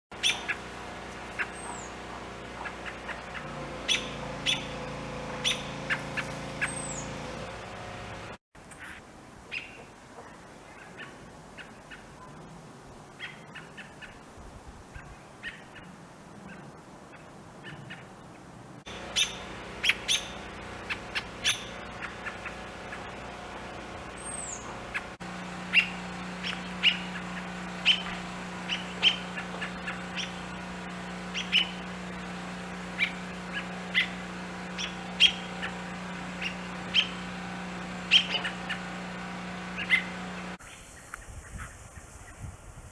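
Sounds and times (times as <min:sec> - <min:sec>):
robins calling: 0:00.1 - 0:07.5, 0:18.9 - 0:42.4
steady low hum: 0:00.1 - 0:08.4, 0:18.8 - 0:40.6.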